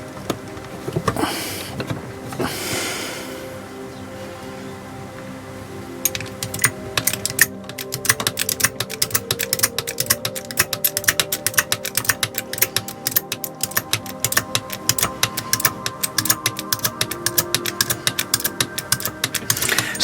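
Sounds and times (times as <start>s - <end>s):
background music: 0.0s - 20.0s
rapid irregular clicking: 6.0s - 20.0s.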